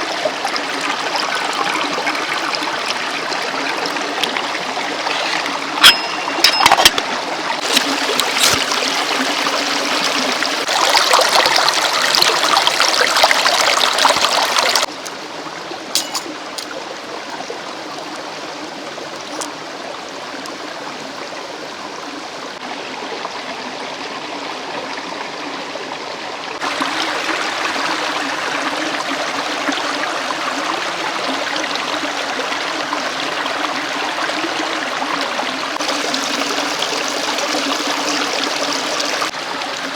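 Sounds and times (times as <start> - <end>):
stream rushing: 0.0 - 22.7.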